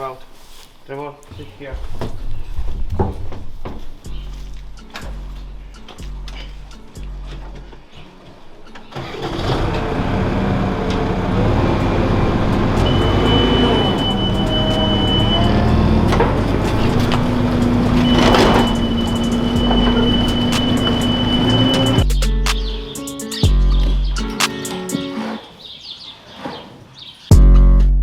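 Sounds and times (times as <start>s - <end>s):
farm machine engine running: 8.9s - 22.0s
thin high whine: 12.8s - 22.0s.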